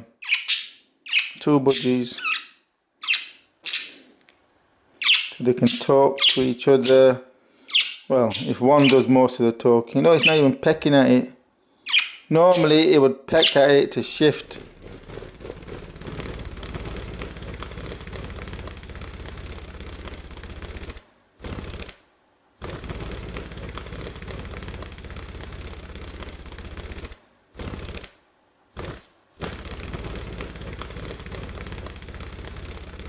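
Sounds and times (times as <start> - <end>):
budgie wings fluttering: 12.5 - 12.7, 14.1 - 33.0.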